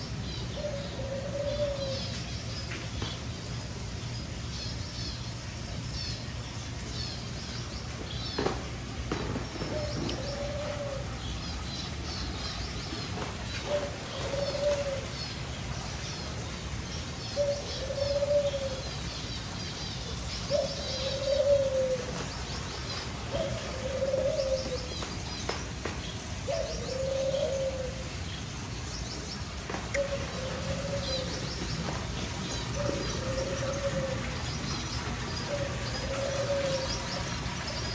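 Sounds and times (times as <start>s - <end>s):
low cooing bird call: 0.4s - 2.3s, 9.3s - 11.4s, 12.6s - 15.4s, 17.3s - 19.2s, 20.3s - 22.4s, 23.1s - 25.1s, 26.4s - 28.2s, 29.8s - 37.7s.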